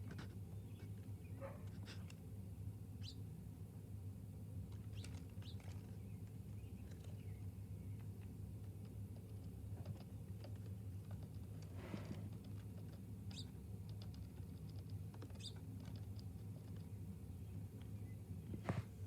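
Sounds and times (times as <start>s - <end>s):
steady low hum: 0.0s - 19.0s
birds pecking taps: 7.9s - 17.0s.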